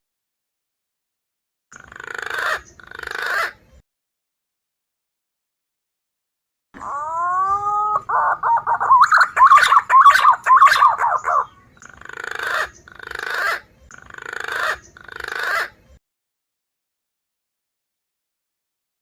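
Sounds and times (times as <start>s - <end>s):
whistled pigeon calls: 6.8s - 15.8s.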